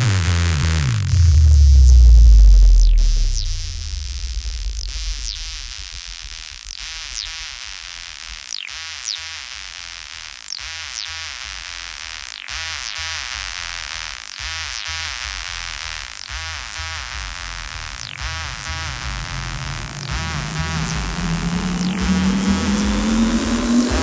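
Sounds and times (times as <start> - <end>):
heavy sub-bass note: 0.0 - 8.3, 15.4 - 24.0
choppy bass pulse: 0.0 - 8.4, 11.4 - 24.0
falling synth zaps: 16.3 - 24.0.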